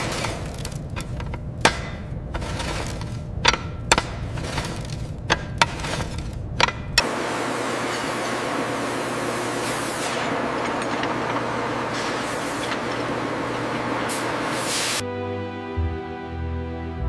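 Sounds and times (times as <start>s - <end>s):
machinery noise: 2.2s - 15.0s
hissing spray bursts: 14.1s - 15.0s
music: 15.0s - 17.0s.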